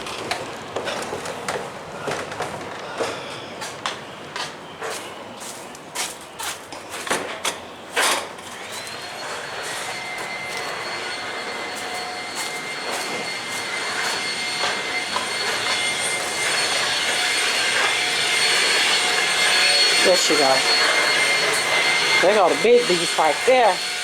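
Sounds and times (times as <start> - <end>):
vacuum cleaner motor whining: 8.0 - 24.0.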